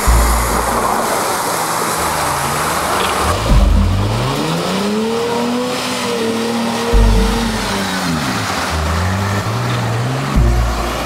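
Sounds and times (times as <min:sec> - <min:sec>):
car engine revving: 0:00.0 - 0:11.0
heavy thump: 0:03.3 - 0:04.4.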